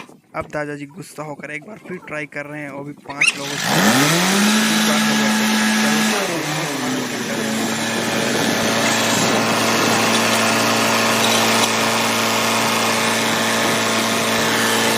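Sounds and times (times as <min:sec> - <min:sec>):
tractor engine running: 0:03.2 - 0:14.9.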